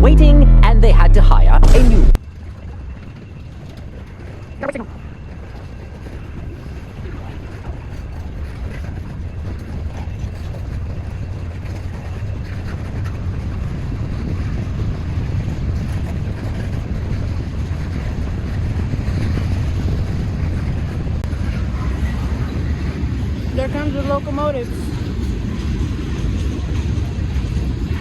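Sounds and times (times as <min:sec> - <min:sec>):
diesel locomotives rumbling: 0:00.0 - 0:28.0
wind buffeting microphone: 0:02.2 - 0:28.0.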